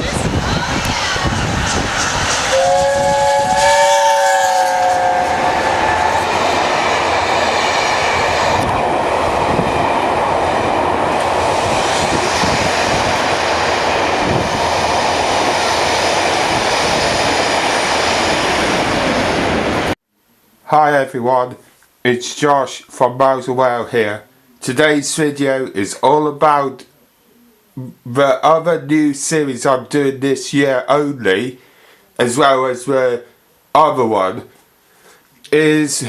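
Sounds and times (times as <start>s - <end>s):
train running on rails: 0.0s - 20.0s
train horn: 2.4s - 8.0s.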